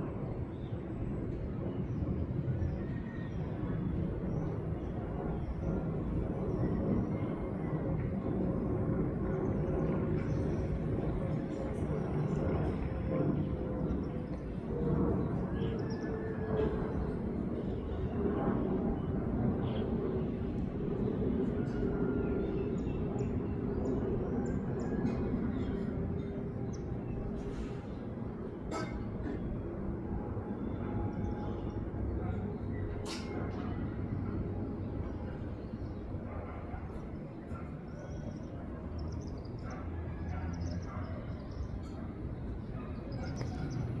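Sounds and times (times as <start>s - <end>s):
jet engines rumbling: 0.0s - 44.0s.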